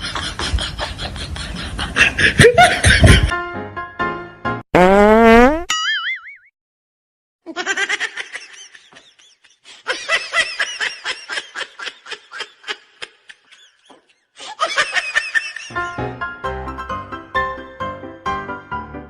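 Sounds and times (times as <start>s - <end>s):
high-pitched laughter: 0.0s - 3.3s, 7.5s - 15.7s.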